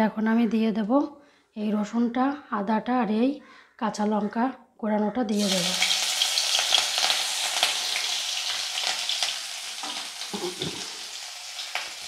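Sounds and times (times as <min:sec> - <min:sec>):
food sizzling in hot oil: 0:05.3 - 0:12.0.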